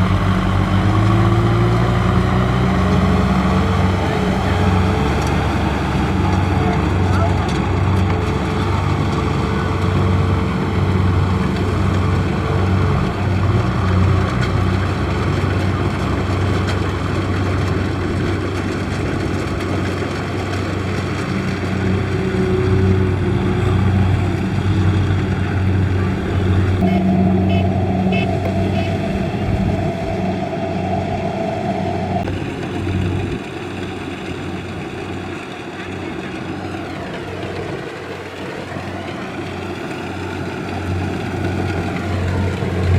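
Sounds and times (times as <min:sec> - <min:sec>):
higher whine: 0:00.0 - 0:13.4, 0:21.9 - 0:33.4
combine harvester engine humming: 0:00.0 - 0:42.9.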